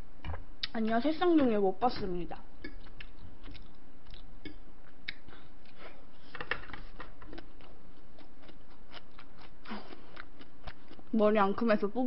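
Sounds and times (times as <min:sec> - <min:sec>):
person chewing food: 0:02.6 - 0:11.2.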